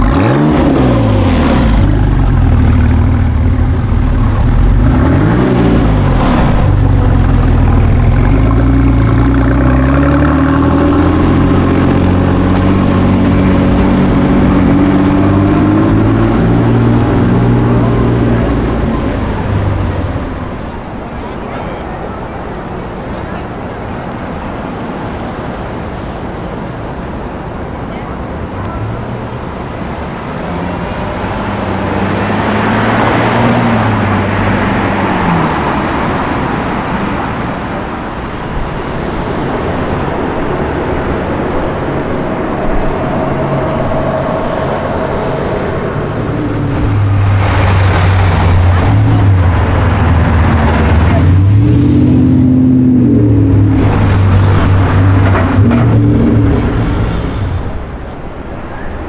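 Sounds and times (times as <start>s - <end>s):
engine revving up and down: 0.0s - 20.2s, 30.8s - 36.7s, 40.9s - 58.0s
city street traffic: 0.0s - 59.0s
high-performance car engines: 0.0s - 59.0s.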